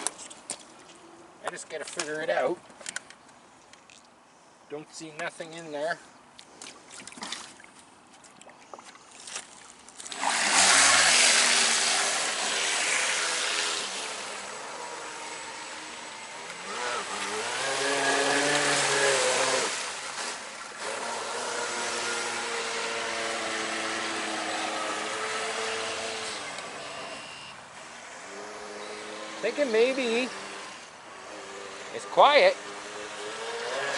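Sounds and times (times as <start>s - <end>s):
electric motor whine: 10.2s - 33.9s.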